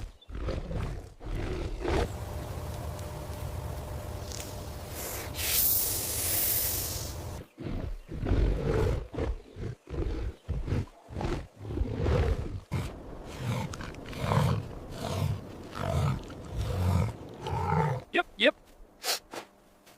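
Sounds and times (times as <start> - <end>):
big cat roaring and growling: 0.3 - 2.3, 7.4 - 18.1.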